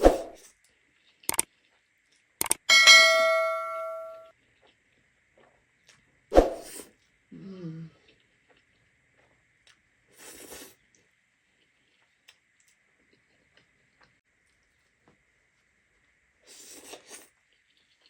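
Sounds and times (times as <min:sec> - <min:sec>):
utensil striking metal dish: 0:02.6 - 0:04.2.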